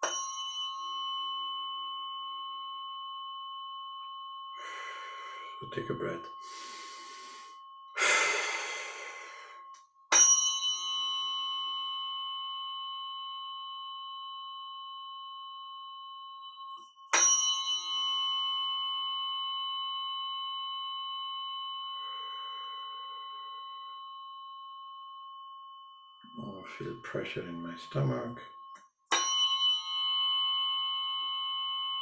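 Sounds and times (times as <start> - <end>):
tuning fork ringing: 0.0 - 32.0
breath blown out: 6.4 - 9.7.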